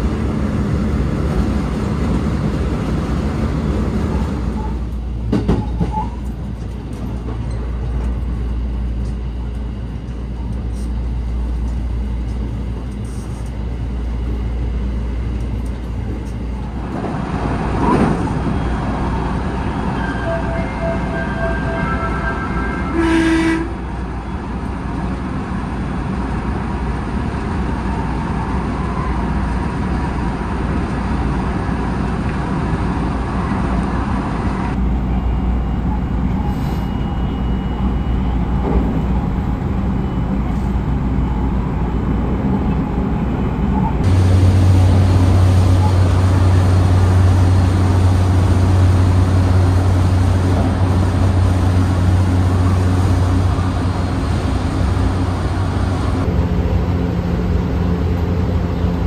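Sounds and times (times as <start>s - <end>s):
train wheels rumbling on rails: 0.0s - 59.0s
brief tone: 20.0s - 23.5s, 35.1s - 39.0s, 39.9s - 41.4s
train motor hum: 29.5s - 59.0s.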